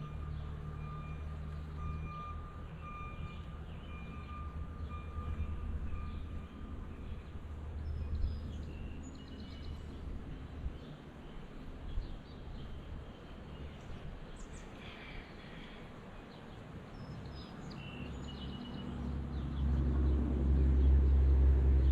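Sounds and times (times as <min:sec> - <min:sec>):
vehicle reversing alarm beeping: 0:00.0 - 0:08.2
low engine rumble: 0:00.0 - 0:21.9.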